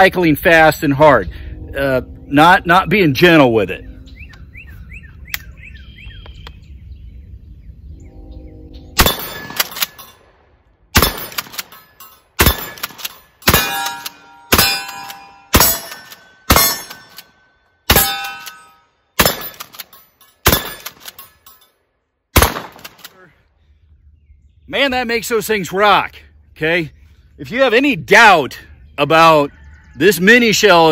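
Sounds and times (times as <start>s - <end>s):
steel targets clanging: 9.0s - 10.3s, 11.0s - 21.8s
shotgun shots: 9.0s - 11.8s, 12.4s - 21.1s, 22.3s - 23.2s.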